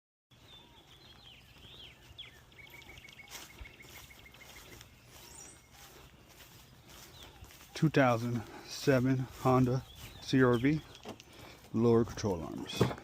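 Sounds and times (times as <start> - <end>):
bird chirping: 0.3 - 13.0.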